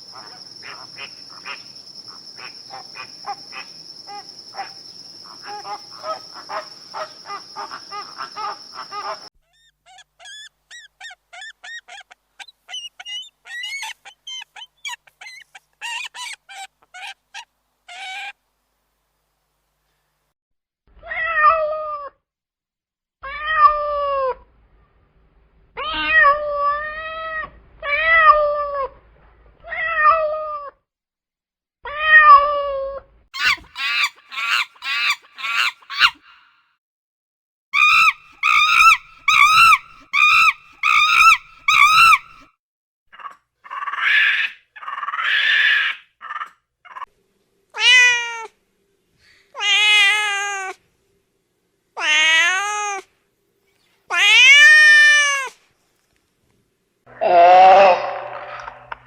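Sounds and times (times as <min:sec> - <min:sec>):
cats meowing: 0:49.6 - 0:50.8, 0:52.0 - 0:53.0, 0:54.1 - 0:55.5.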